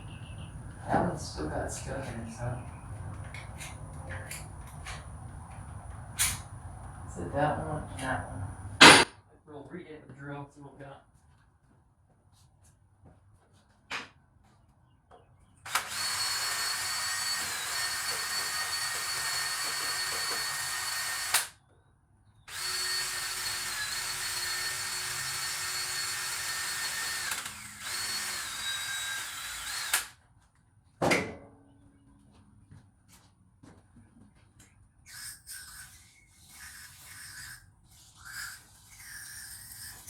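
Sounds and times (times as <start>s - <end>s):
power drill whining: 15.7s - 21.6s, 22.5s - 30.2s.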